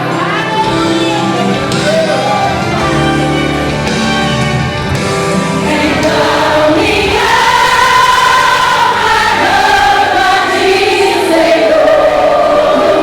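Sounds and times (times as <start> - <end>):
instrumental backing: 0.0 - 13.0
women's choir singing: 5.6 - 13.0.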